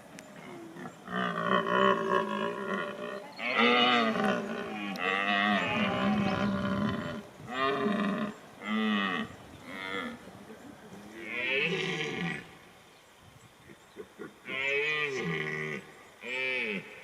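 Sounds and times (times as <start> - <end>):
cattle mooing: 1.1 - 10.2.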